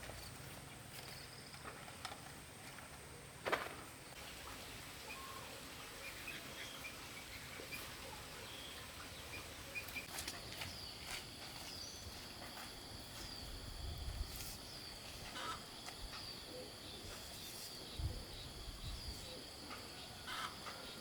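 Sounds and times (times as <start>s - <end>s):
high insect drone: 10.0s - 21.0s.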